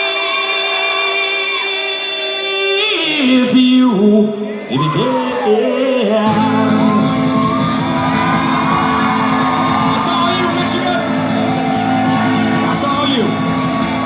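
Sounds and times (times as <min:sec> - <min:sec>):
person singing: 0:00.0 - 0:14.0
audience shouting and whooping: 0:04.5 - 0:14.0.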